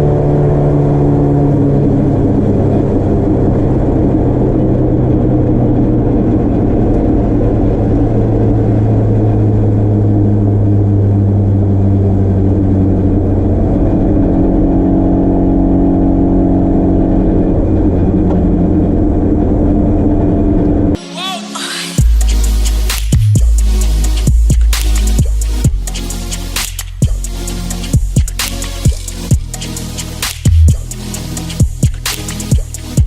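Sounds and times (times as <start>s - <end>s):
car engine running hard: 0.0s - 21.0s, 22.0s - 33.0s.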